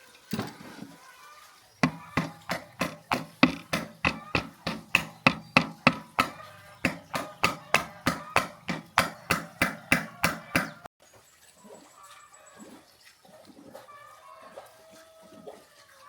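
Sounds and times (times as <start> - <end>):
hammer blows ringing: 1.8 - 10.9.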